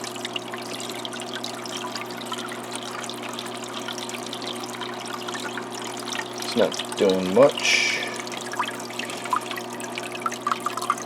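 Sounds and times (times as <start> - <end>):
small waterfall trickling: 0.0 - 11.0
steady low hum: 5.4 - 10.0.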